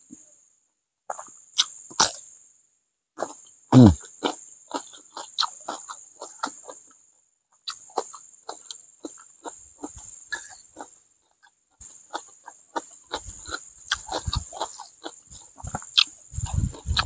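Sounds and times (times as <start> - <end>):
insect droning: 0.0 - 17.0
chewing: 3.2 - 6.9, 7.6 - 17.0
low falling mouth sound: 3.8 - 4.0.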